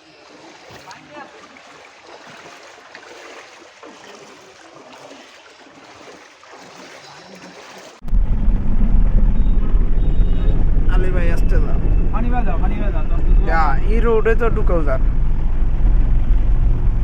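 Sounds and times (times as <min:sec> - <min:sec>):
floodwater splashing and flowing: 0:00.0 - 0:08.1
loud low rumble: 0:08.0 - 0:17.0.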